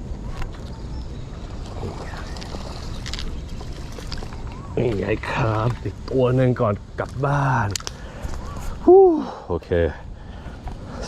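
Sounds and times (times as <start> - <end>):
wind rumbling on microphone: 0.0 - 9.1.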